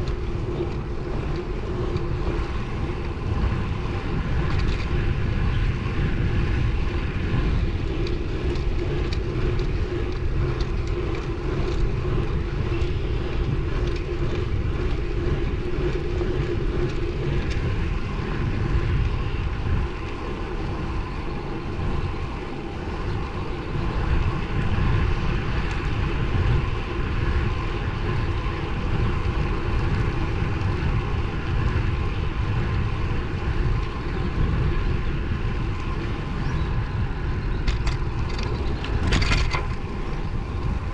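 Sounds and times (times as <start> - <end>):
faint bike and road hum: 0.0 - 40.9
wind rushing over microphone: 0.0 - 40.9.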